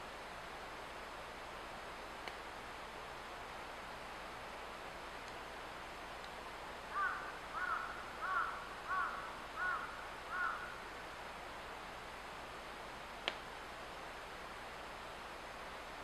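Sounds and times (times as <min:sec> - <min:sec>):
background hiss: 0:00.0 - 0:16.0
bird calling: 0:06.9 - 0:10.7.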